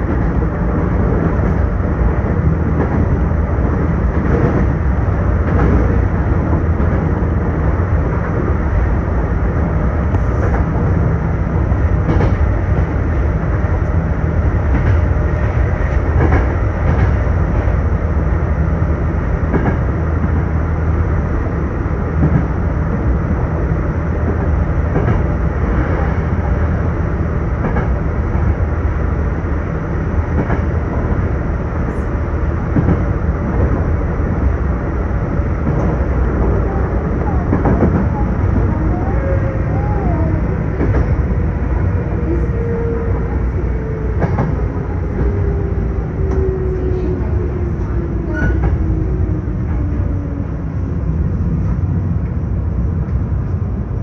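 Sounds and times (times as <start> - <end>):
train wheels rumbling on rail: 0.0 - 54.0
clicks at rail joints: 5.4 - 7.1, 12.0 - 12.9, 30.3 - 30.7, 44.0 - 46.5.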